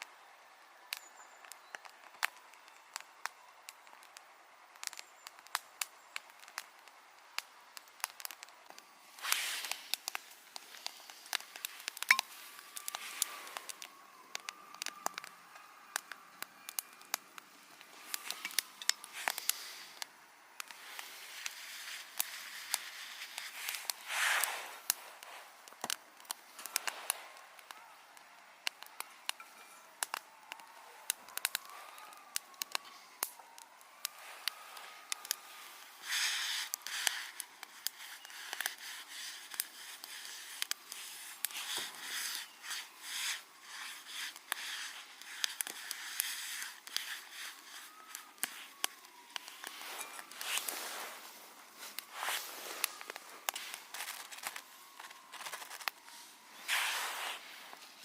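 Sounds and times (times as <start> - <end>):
campfire crackling and popping: 0.0 - 58.0
handling rustle: 38.0 - 58.0.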